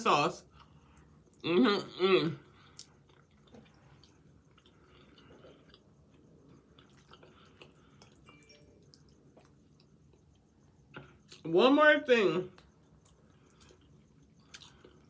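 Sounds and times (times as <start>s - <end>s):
chewing mouth clicks and smacks: 2.8s - 8.2s, 12.6s - 15.0s.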